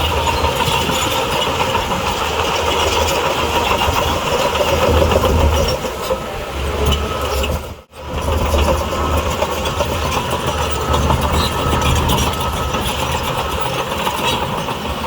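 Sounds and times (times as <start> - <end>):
diesel machinery engine rumble: 0.0 - 15.0.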